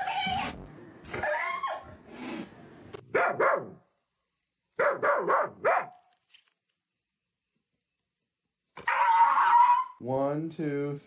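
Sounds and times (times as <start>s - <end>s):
dog barking: 3.1s - 3.8s, 4.8s - 6.0s.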